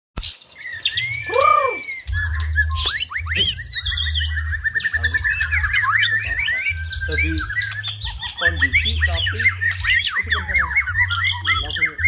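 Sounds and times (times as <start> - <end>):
bird singing whistled notes: 0.2 - 12.0.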